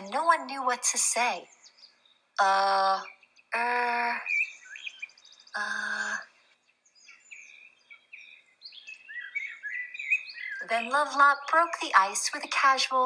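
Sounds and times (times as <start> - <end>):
birds chirping: 0.0 - 13.0
high rapid bird trill: 3.0 - 13.0.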